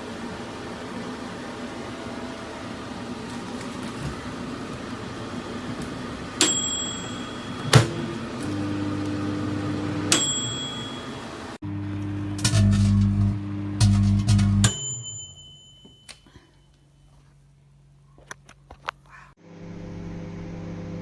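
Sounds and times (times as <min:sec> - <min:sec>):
microwave oven humming: 0:00.0 - 0:18.0, 0:19.4 - 0:21.0
microwave bell dinging: 0:06.4 - 0:16.8.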